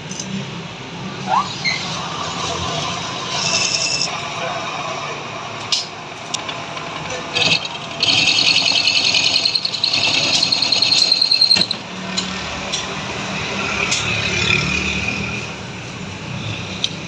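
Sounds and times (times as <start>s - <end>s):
high-pitched lathe tool screech: 1.2s - 4.4s, 7.3s - 11.8s
lathe machine humming: 1.9s - 11.8s.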